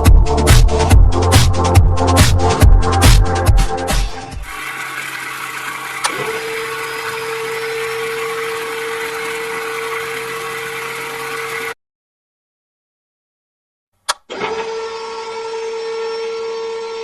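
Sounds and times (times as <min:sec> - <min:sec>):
small electric motor whirring: 0:04.4 - 0:11.8
click: 0:06.0 - 0:06.2, 0:14.0 - 0:14.3.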